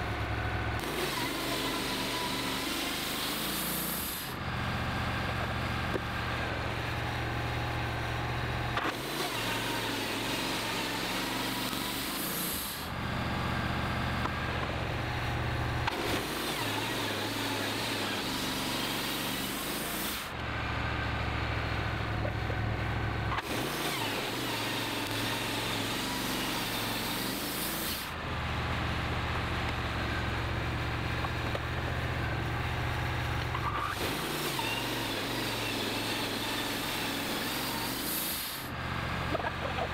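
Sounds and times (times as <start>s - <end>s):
band saw rasping through log: 0.8s - 4.4s, 8.8s - 13.0s, 15.8s - 20.4s, 23.3s - 28.2s, 33.5s - 39.9s
engine humming: 4.2s - 9.1s, 12.6s - 17.4s, 20.3s - 27.0s, 28.1s - 34.1s, 38.6s - 39.9s.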